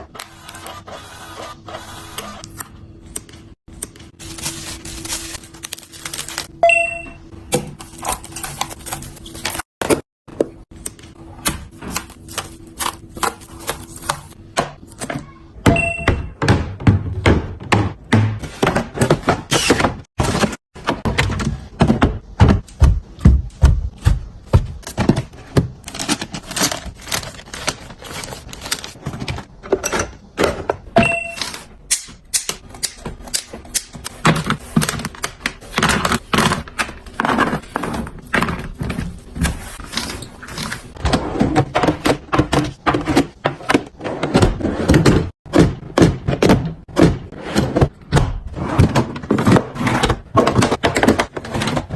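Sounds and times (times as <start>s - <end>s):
food containers clicking and thunking: 12.8s - 31.8s, 40.7s - 51.9s.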